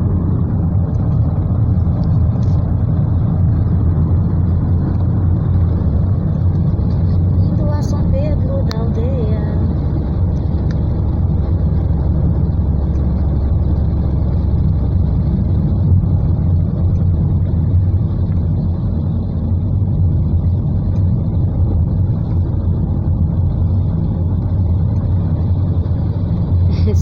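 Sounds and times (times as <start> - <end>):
car engine and tyres on wet road: 0.0 - 27.0.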